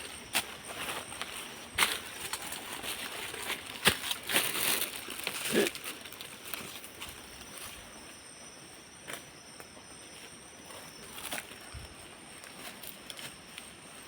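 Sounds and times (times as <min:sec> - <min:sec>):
rustling in dry leaves: 0:00.0 - 0:08.1.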